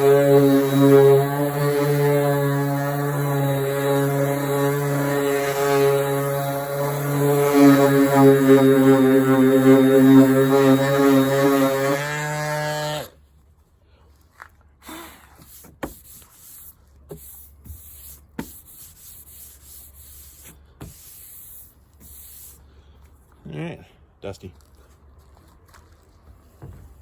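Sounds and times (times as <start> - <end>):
orbital sander running: 0.0 - 13.2.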